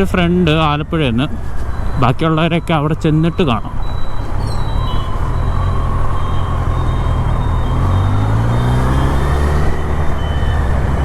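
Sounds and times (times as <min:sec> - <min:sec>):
road and wind rush: 0:00.0 - 0:11.0
vehicle engine running: 0:04.6 - 0:11.0.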